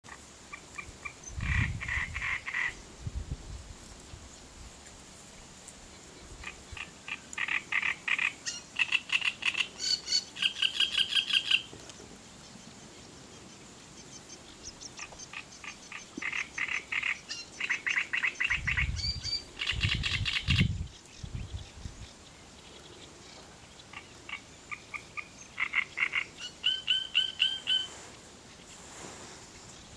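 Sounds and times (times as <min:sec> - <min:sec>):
songbird chattering song: 0:00.1 - 0:02.8, 0:05.9 - 0:28.8.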